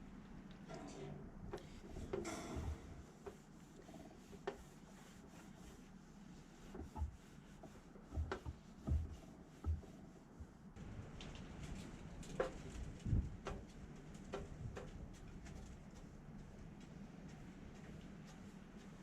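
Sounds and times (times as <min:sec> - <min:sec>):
light knocks and taps: 0:06.7 - 0:10.6
dull thumps: 0:08.1 - 0:10.0.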